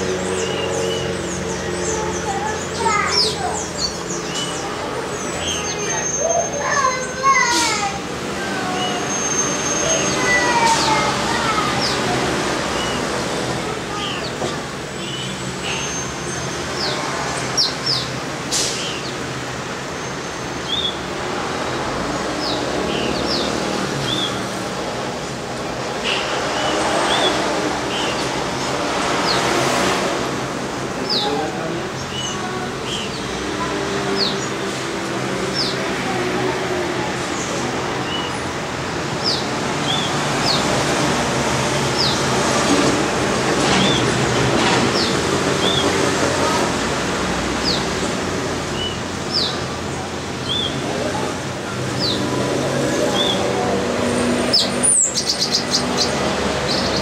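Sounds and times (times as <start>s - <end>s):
small birds chirping: 0.0s - 29.8s, 30.9s - 42.5s, 43.4s - 57.0s
steady background noise: 0.0s - 57.0s
high bird chirps: 54.5s - 57.0s.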